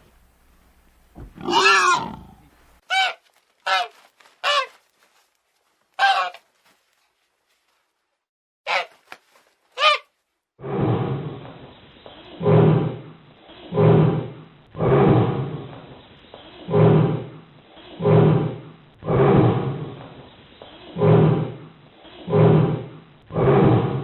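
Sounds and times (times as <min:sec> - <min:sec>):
lion grunting roars: 0:01.3 - 0:02.5, 0:10.6 - 0:15.9, 0:16.6 - 0:20.2, 0:20.8 - 0:24.0.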